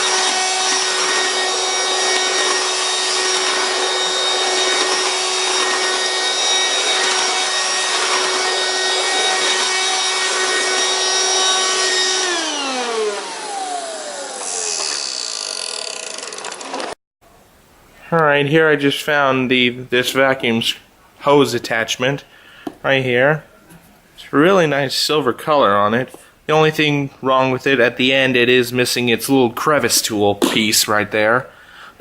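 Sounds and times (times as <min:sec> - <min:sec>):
vacuum cleaner motor whine: 0:00.0 - 0:16.9.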